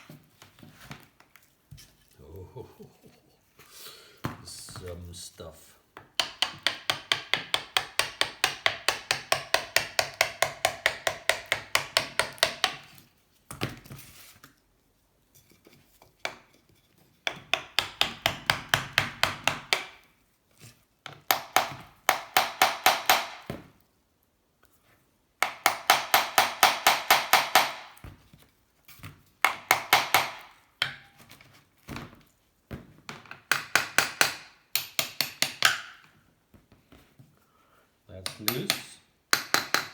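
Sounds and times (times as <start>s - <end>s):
hammer tapping wooden wedges: 5.9s - 13.0s, 16.0s - 20.1s, 21.0s - 23.7s, 25.4s - 28.4s, 29.4s - 31.5s, 32.8s - 37.3s, 38.1s - 39.9s.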